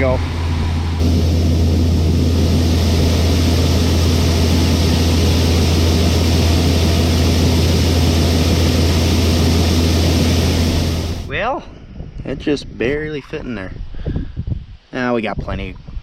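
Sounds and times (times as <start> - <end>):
truck engine droning: 0.0 - 11.3.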